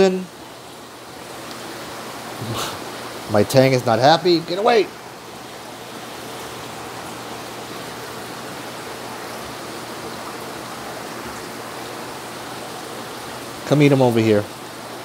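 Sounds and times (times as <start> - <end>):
aquarium water rushing: 0.0 - 15.0.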